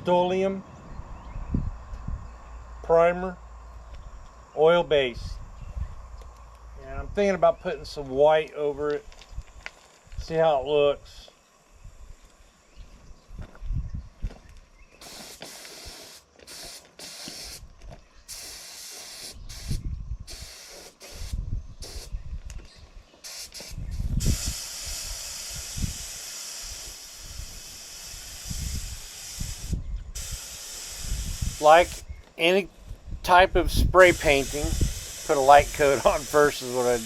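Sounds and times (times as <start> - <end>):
spray paint hissing: 15.0 - 22.2, 23.2 - 37.0.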